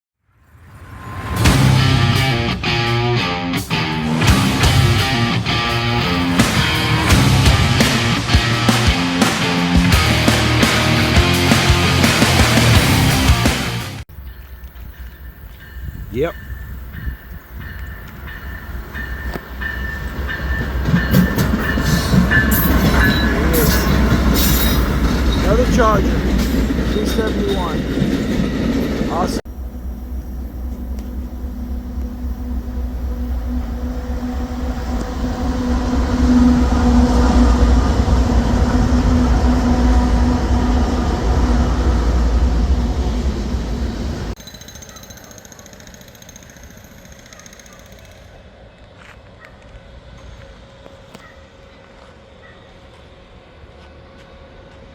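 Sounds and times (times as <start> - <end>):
diesel locomotive rumble: 0.9 - 44.4
train wheels clattering on rails: 14.4 - 29.4.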